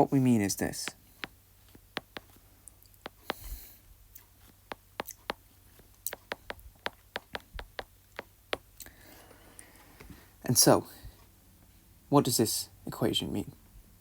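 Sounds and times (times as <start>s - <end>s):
pen tapping and clicking: 0.8s - 2.4s, 3.0s - 3.6s, 4.7s - 5.4s, 6.1s - 8.7s
pen scraping on paper: 1.2s - 2.4s, 3.1s - 3.6s, 6.1s - 7.9s.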